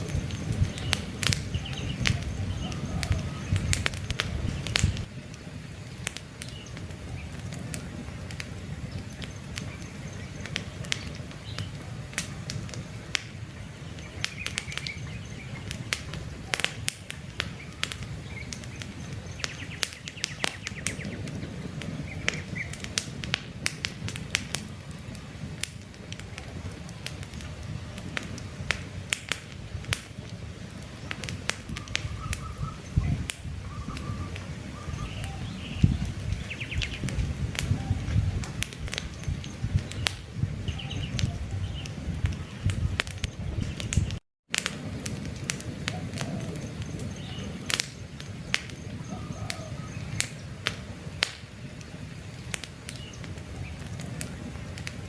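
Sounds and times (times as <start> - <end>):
faint birds chirping: 0.0 - 23.0, 30.2 - 38.4, 45.9 - 50.6
campfire crackling and popping: 0.0 - 55.0.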